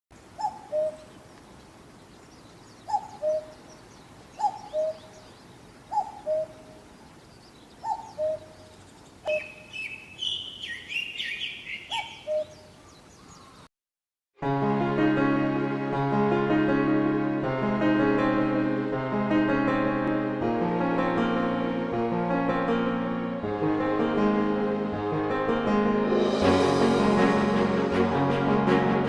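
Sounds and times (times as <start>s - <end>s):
bird singing high quick phrases: 0.2s - 13.7s.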